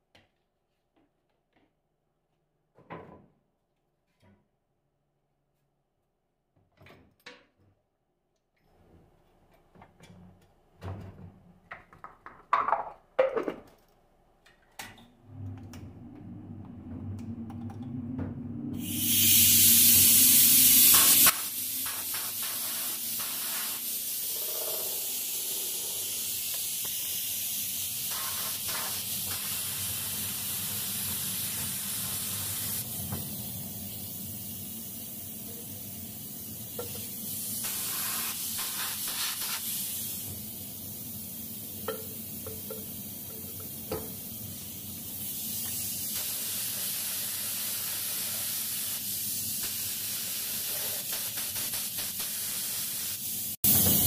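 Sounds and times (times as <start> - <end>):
spray can hissing: 18.8 - 54.0.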